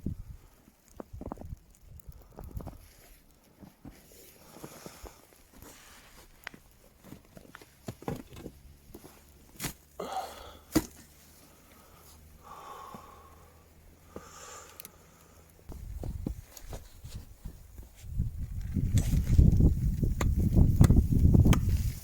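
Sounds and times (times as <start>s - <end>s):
rustling: 0.5s - 10.0s, 15.2s - 22.0s.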